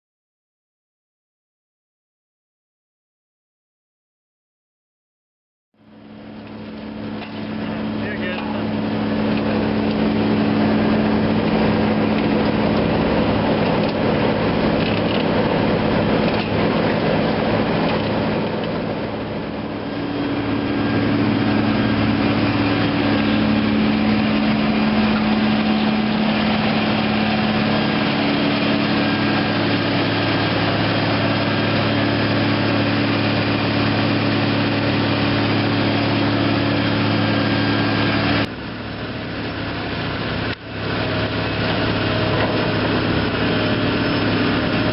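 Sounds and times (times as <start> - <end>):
diesel engine running: 5.8 - 44.9.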